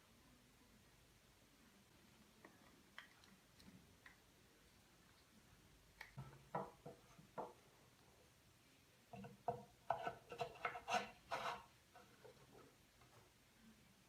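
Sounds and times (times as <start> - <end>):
wooden pieces knocking and scraping: 9.2 - 12.7.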